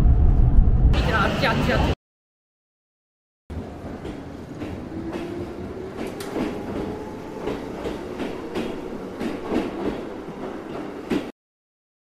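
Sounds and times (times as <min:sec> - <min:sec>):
train rumbling along track: 0:03.5 - 0:11.3
train wheel clacks: 0:04.0 - 0:11.3.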